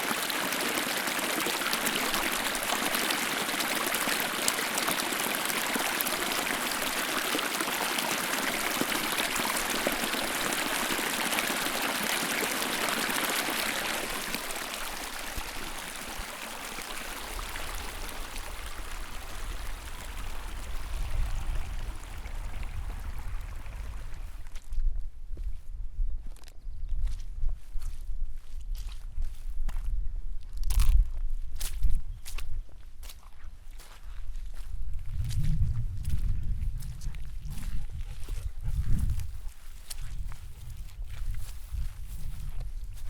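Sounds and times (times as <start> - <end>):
stream trickling: 0.0 - 24.5.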